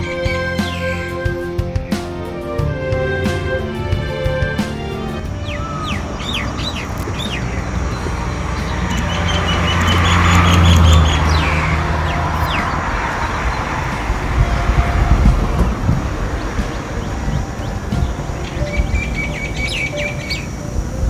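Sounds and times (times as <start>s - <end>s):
birds calling: 0.0s - 21.0s.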